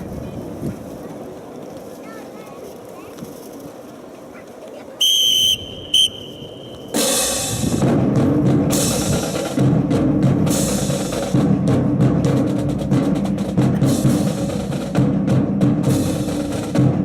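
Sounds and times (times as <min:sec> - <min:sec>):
high whistle blasts: 0:05.0 - 0:07.1
loud drum-led music: 0:06.9 - 0:17.0.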